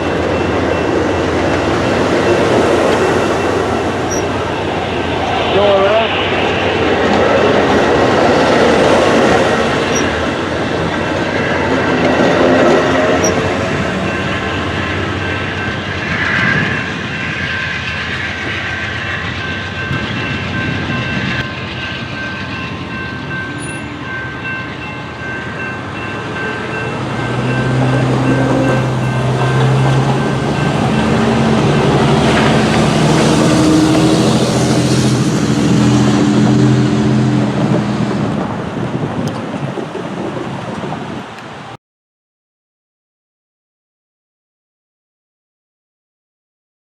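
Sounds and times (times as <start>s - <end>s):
locomotive low horn tone: 0.0s - 6.4s, 7.1s - 15.9s, 26.0s - 37.7s
train wheels clattering on rails: 0.0s - 41.7s
thin high steady tones: 0.2s - 6.3s.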